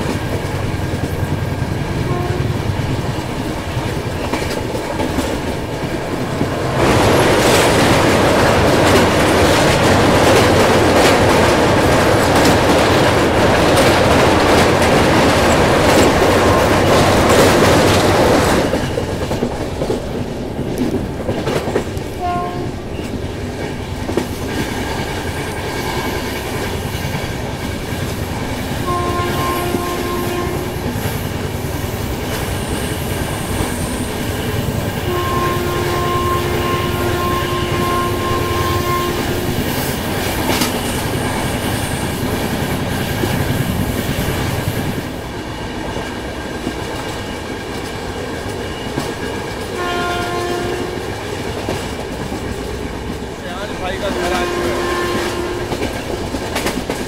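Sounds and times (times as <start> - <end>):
train wheels clickety-clack: 0.0 - 57.0
train horn blasts: 2.0 - 2.8, 22.2 - 23.0, 28.8 - 31.0, 35.0 - 39.7, 49.7 - 51.1, 54.0 - 55.9.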